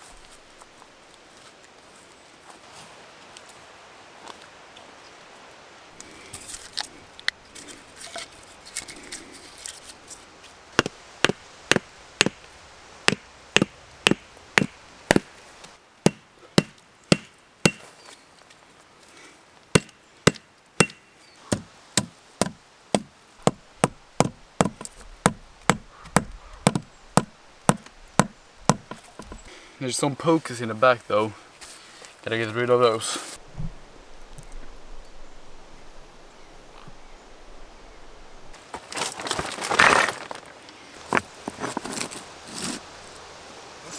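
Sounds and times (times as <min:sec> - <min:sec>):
axe chopping wood: 0:10.8 - 0:15.4, 0:16.0 - 0:17.9, 0:19.8 - 0:29.4.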